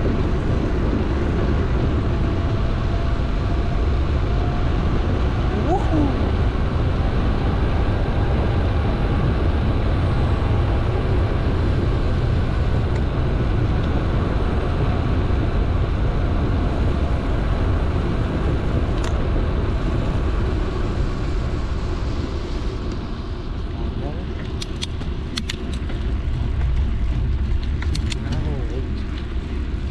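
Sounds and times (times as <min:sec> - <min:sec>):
wind on microphone: 0:00.0 - 0:29.9
bike tyres rolling over trail: 0:24.4 - 0:29.9.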